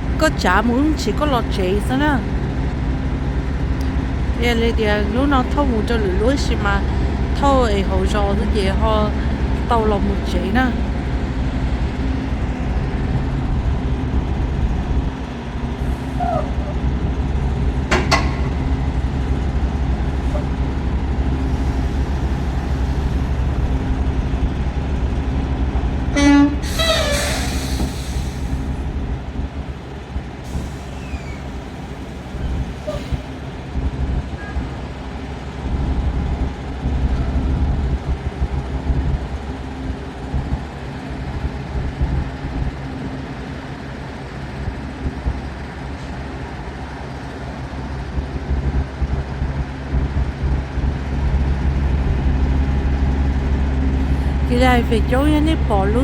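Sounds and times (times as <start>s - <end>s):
truck engine drone: 0.0s - 56.0s
loud air hiss: 26.6s - 28.8s.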